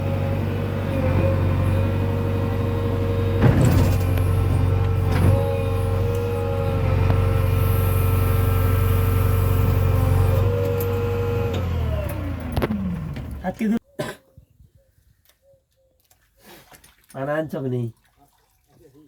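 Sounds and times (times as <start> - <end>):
heavy diesel engine running: 0.0 - 13.6.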